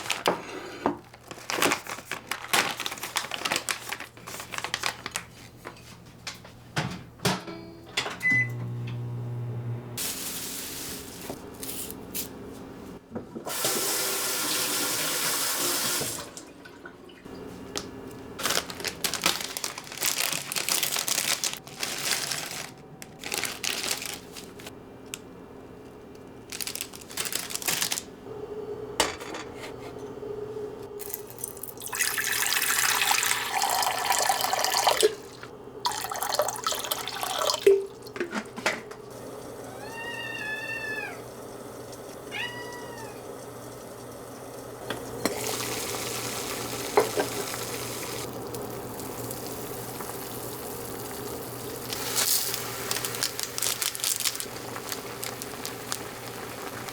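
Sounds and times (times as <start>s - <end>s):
water running from a tap: 13.5s - 16.5s, 31.0s - 38.2s, 41.1s - 56.9s
cat meowing: 39.7s - 41.3s, 42.3s - 43.3s.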